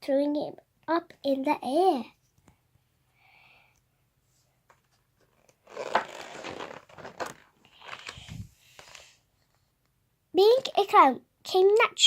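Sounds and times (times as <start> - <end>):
book pages rustling: 4.7 - 9.7.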